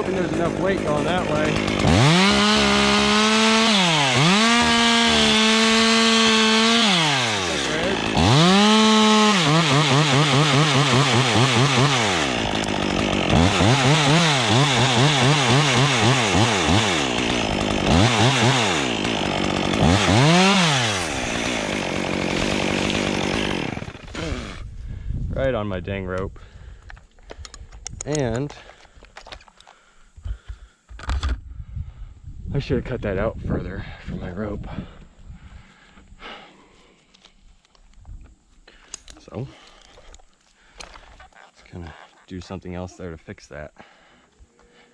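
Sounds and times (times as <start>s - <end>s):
chainsaw revving cutting wood: 0.0s - 24.6s.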